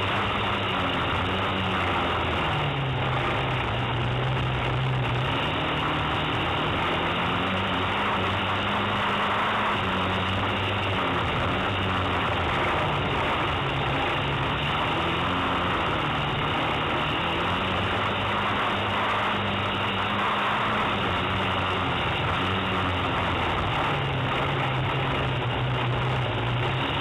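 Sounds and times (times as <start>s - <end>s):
race car engine revving: 0.0s - 27.0s
steady rushing noise: 0.0s - 27.0s.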